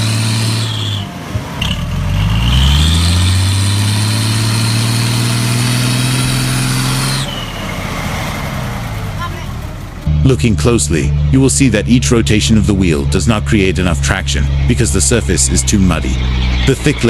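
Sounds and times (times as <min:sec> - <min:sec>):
truck engine revving under load: 0:00.0 - 0:17.0
high whine: 0:10.0 - 0:17.0.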